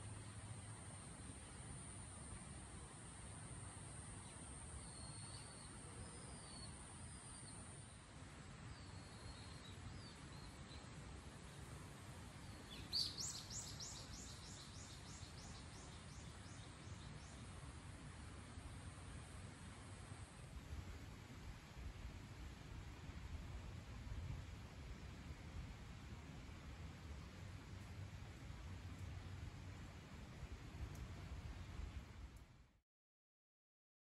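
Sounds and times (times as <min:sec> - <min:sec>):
faint bird chirps: 0:04.2 - 0:08.0, 0:12.4 - 0:17.4.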